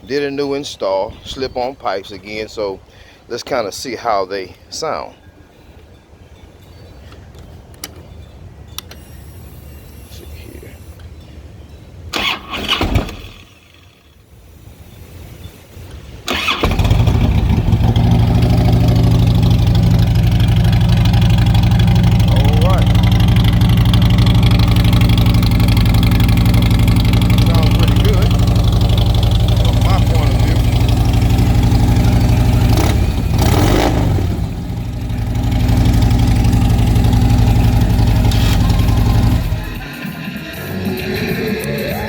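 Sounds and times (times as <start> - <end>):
motorcycle engine idling: 16.3 - 39.9.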